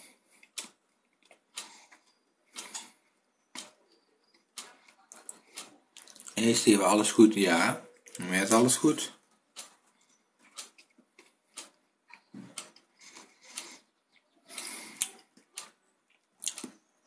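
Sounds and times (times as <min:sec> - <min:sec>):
person chewing: 0:00.3 - 0:03.0, 0:03.6 - 0:06.4, 0:09.6 - 0:16.8.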